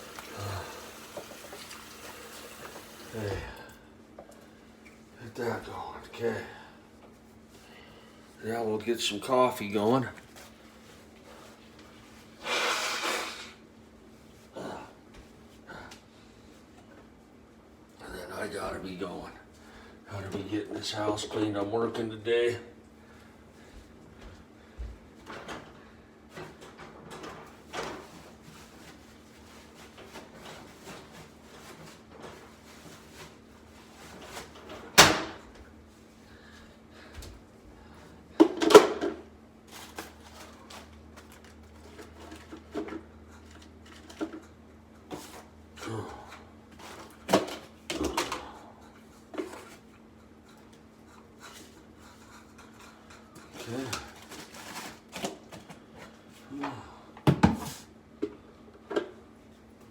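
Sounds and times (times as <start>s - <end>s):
household items knocking and clattering: 57.2s - 57.8s.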